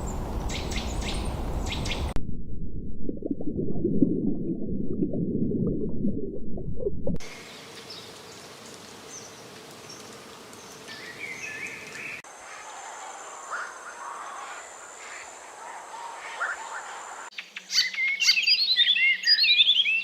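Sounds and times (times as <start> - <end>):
muffled low rumble: 0.0 - 7.2.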